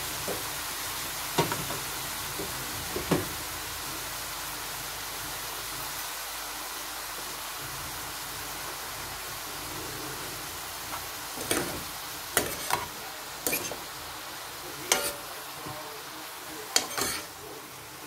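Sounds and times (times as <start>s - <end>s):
mushrooms sizzling in a pan: 0.0s - 18.0s
metal spoon clinking on pan: 12.4s - 13.8s, 14.9s - 15.2s, 16.8s - 17.3s.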